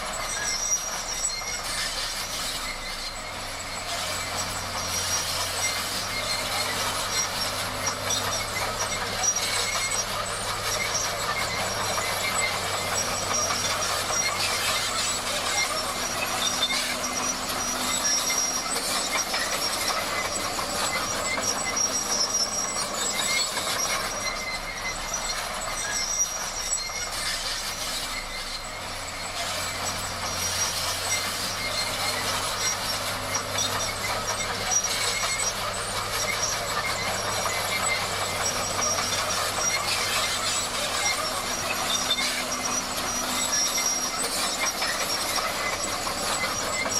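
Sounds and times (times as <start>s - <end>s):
bulldozer diesel engine running: 0.0s - 46.9s
faint high squeals: 0.0s - 46.9s
steel crawler tracks clattering: 0.0s - 46.9s.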